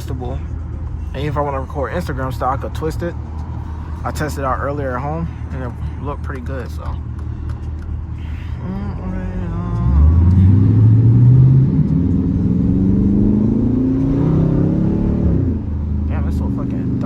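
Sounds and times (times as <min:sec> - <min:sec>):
vee eight exhaust revving: 0:07.4 - 0:17.0.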